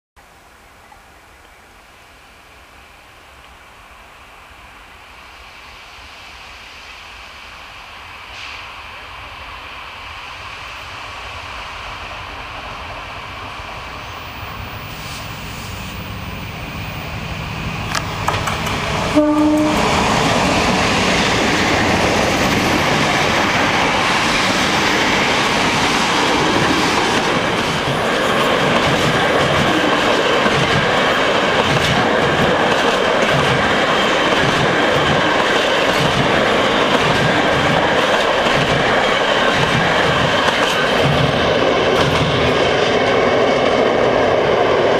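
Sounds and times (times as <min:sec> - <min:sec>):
loud rail noise: 0:00.2 - 0:44.9
diesel locomotive passing: 0:02.2 - 0:44.9
train wheels clacking over rail joints: 0:17.9 - 0:43.2.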